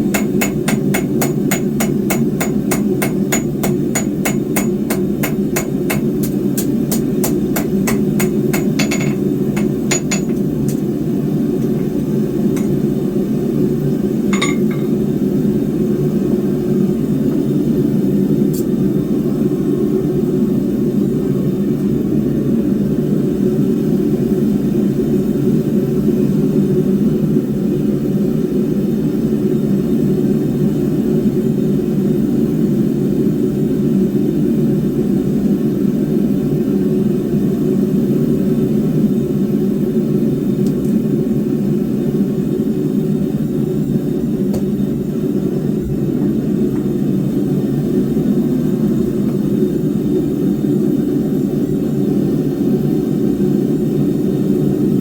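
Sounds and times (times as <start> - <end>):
hammer ringing on anvil: 0.1 - 6.1, 6.9 - 10.4, 14.4 - 15.0.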